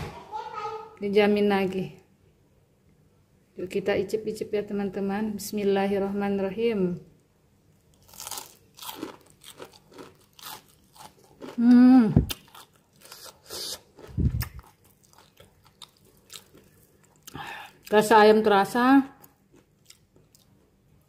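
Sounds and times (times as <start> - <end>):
crunchy chewing of fried chicken: 7.9 - 17.9, 19.2 - 20.8.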